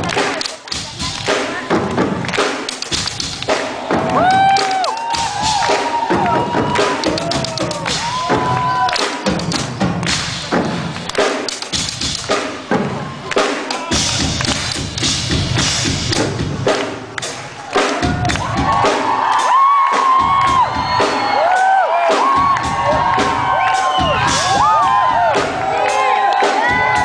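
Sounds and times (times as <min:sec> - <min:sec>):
drum kit played live: 0:00.0 - 0:27.0
crowd cheering and screaming: 0:03.5 - 0:09.3, 0:17.4 - 0:27.0.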